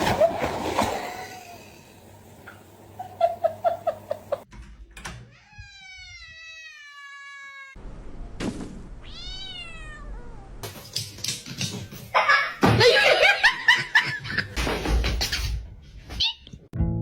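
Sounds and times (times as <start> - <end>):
cat meowing: 5.3 - 7.8, 9.0 - 10.6.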